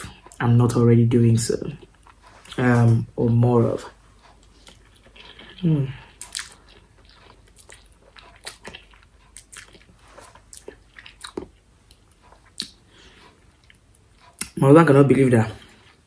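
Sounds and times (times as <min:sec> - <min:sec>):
person chewing noodles: 0:01.7 - 0:14.6
wet mouth clicks: 0:04.6 - 0:12.8.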